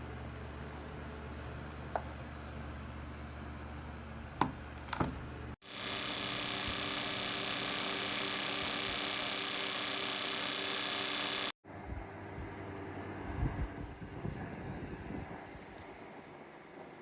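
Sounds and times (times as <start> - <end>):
desk fan running: 0.0 - 11.6.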